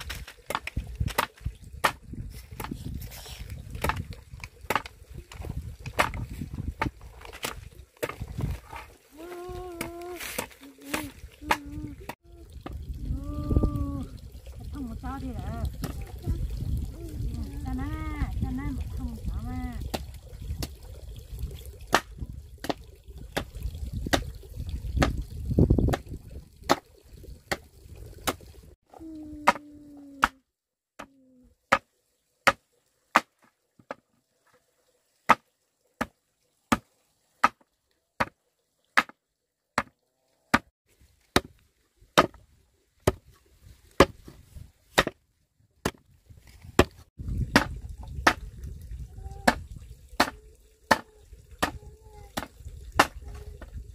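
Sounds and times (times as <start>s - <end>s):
blade chopping wood: 32.5s - 34.0s, 37.4s - 37.6s, 39.0s - 39.2s, 41.3s - 41.6s, 42.2s - 42.4s, 43.0s - 43.2s, 45.0s - 45.2s, 46.8s - 48.4s, 52.4s - 53.2s.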